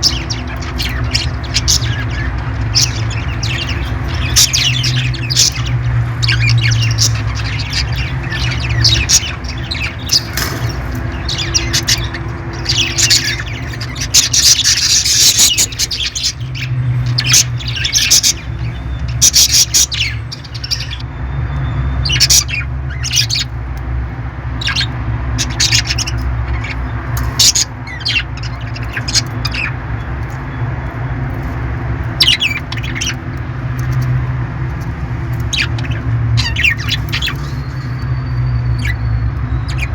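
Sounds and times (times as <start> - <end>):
parrots squawking and chirping: 0.0 - 39.9.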